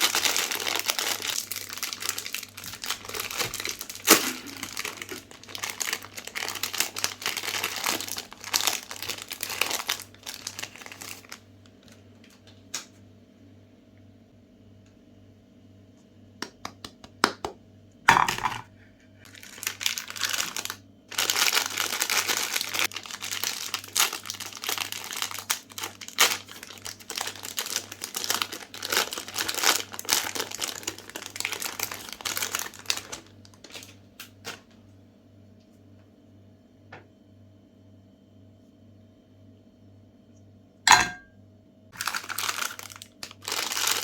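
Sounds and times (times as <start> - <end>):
crinkling and crackling: 0.0 - 12.7, 19.3 - 34.8, 42.0 - 44.0.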